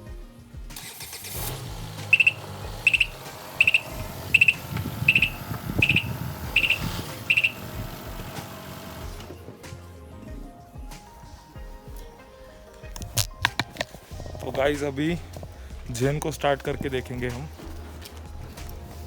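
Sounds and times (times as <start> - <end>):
car engine running: 0.8 - 9.4
high-pitched beeper: 2.0 - 7.8.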